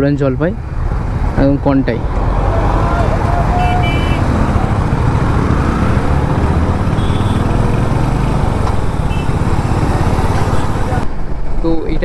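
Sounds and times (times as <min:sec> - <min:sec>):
road noise rushing: 0:00.0 - 0:12.0
motorcycle engine running: 0:03.8 - 0:11.0.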